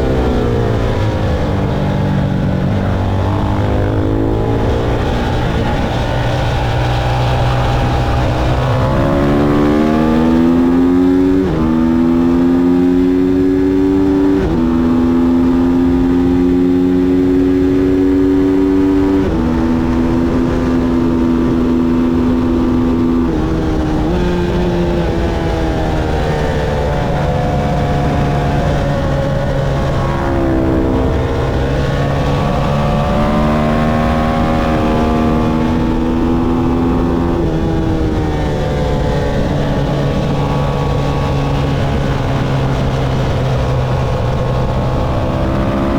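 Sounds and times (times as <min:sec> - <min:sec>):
motorcycle engine revving through gears: 0:00.0 - 0:45.9.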